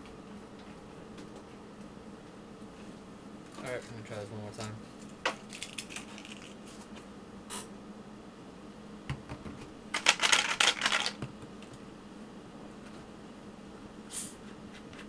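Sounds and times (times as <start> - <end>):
rapid scratchy clicking: 9.9 - 11.2.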